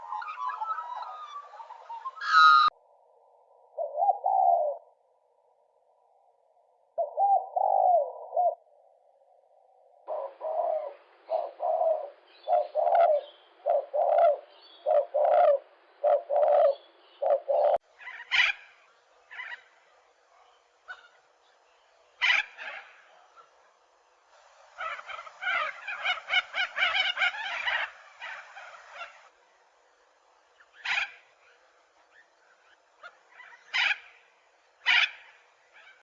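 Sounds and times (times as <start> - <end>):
low repeated bird calls: 3.8 - 5.0, 7.0 - 8.7, 10.0 - 29.4, 30.4 - 36.0.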